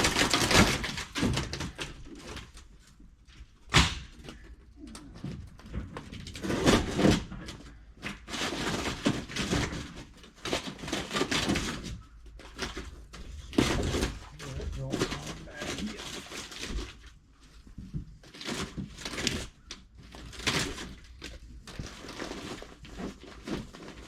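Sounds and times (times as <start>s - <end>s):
building materials clattering and scraping: 0.0s - 24.0s.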